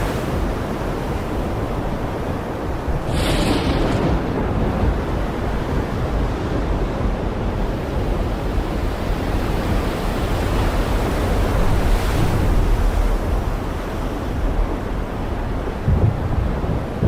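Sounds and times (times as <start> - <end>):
heavy rain falling: 2.9 - 5.8.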